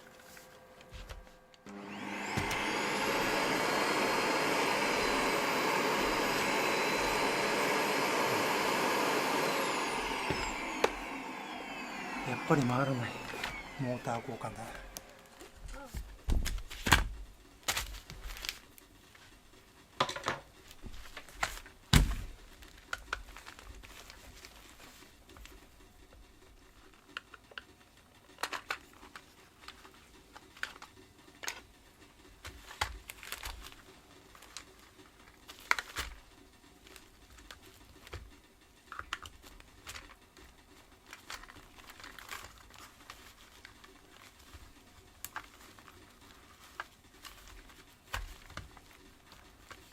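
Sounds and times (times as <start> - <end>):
crinkling: 14.8 - 19.4, 20.6 - 25.8, 26.4 - 49.9.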